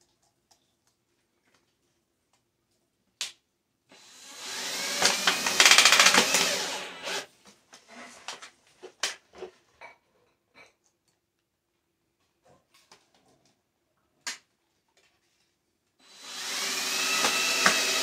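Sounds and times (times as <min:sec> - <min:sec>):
power drill driving screw into metal: 0:04.0 - 0:07.3, 0:16.1 - 0:18.0.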